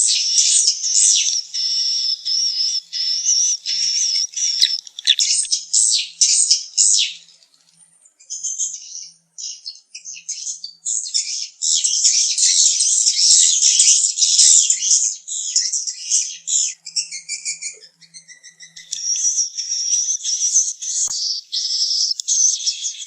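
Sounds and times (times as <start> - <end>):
swiftlets twittering: 0.0 - 5.6.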